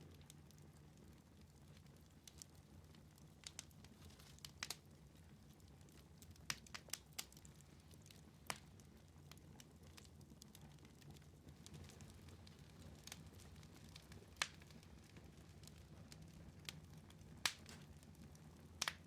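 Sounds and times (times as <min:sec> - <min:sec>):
faint low background hum: 0:00.0 - 0:19.0
wood fire crackling: 0:00.0 - 0:19.0
sharp pops of fire: 0:04.3 - 0:04.8, 0:08.4 - 0:08.7, 0:13.9 - 0:14.8, 0:17.4 - 0:18.0, 0:18.8 - 0:19.0.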